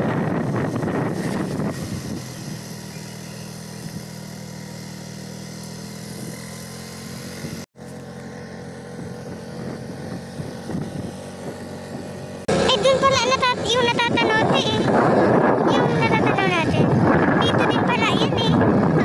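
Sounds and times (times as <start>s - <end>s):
wind noise: 0.0s - 4.2s, 9.0s - 19.0s
motorcycle engine running: 0.0s - 19.0s.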